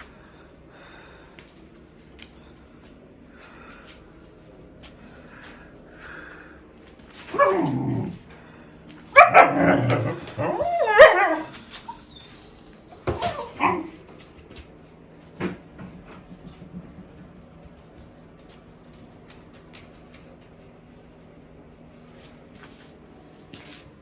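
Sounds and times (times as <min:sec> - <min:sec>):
dog barking and yelping: 0:07.3 - 0:08.1, 0:09.1 - 0:14.0.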